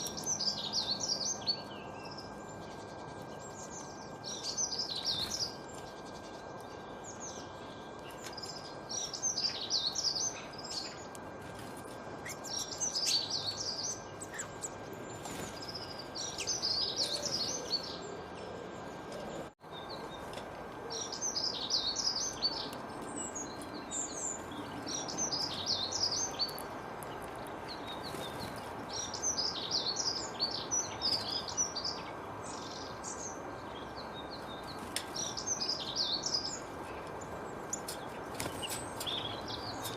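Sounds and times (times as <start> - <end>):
songbird singing high chirps: 0.0 - 11.2, 12.2 - 18.9, 20.9 - 39.9.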